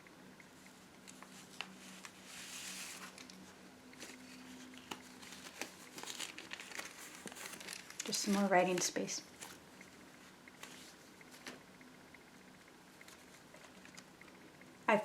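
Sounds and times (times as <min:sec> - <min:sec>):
faint steady hum: 0:00.0 - 0:15.0
paper pages rustling: 0:01.1 - 0:09.6, 0:10.6 - 0:11.6.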